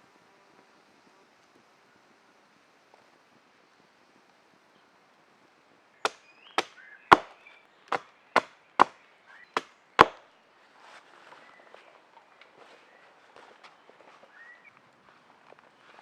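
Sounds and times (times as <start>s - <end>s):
blade chopping wood: 6.1s - 9.0s, 9.6s - 10.2s.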